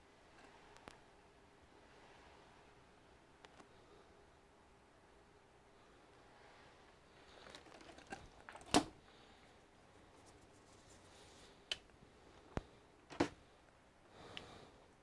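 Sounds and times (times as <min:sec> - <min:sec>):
soft rustle: 0:05.8 - 0:14.6.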